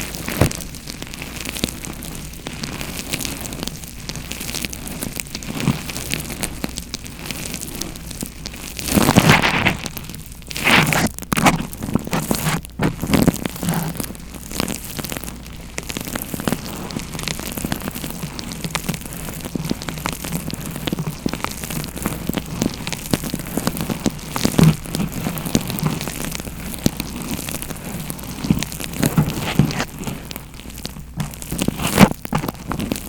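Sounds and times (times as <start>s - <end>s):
dense crackling and tapping: 0.0s - 33.0s.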